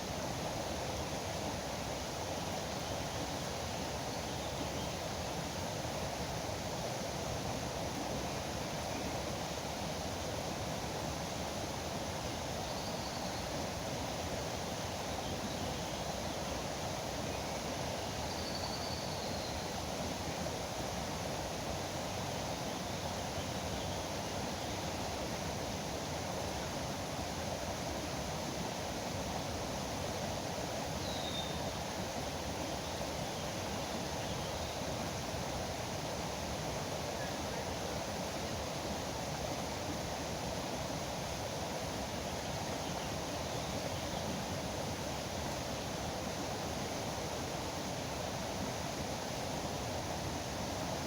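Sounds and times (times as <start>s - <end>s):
faint bird chirp: 18.2s - 19.6s, 31.0s - 31.7s.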